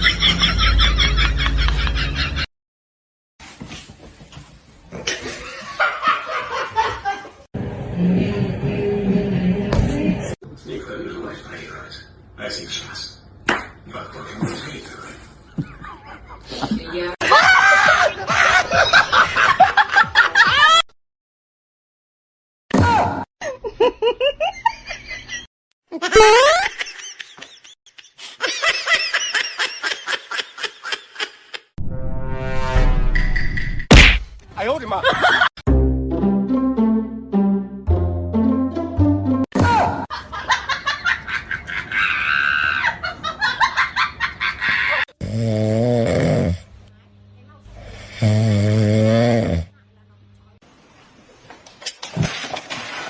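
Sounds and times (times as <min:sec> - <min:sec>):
high-pitched laughter: 0:17.2 - 0:19.4, 0:23.4 - 0:31.6.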